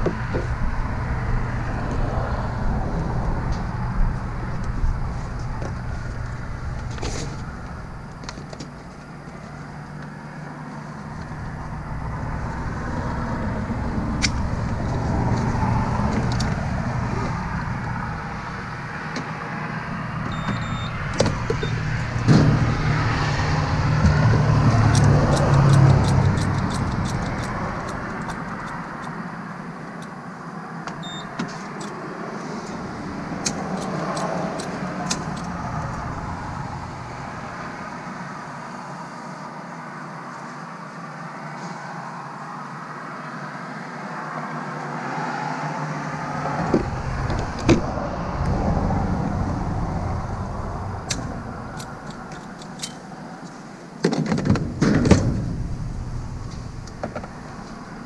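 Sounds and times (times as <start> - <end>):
car engine running: 10.8 - 30.3
short high beeps: 20.3 - 21.0, 31.0 - 31.3.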